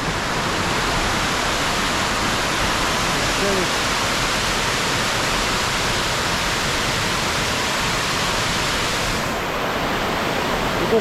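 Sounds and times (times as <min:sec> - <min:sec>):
waterfall splashing: 0:00.0 - 0:11.0.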